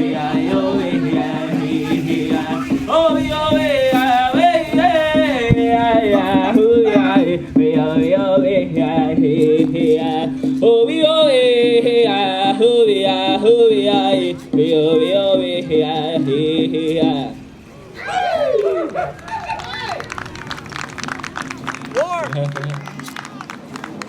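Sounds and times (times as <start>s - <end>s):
person singing vocables: 0.0s - 17.5s.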